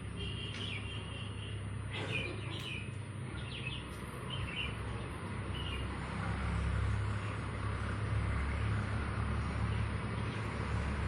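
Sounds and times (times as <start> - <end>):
birds chirping: 0.2 - 6.4.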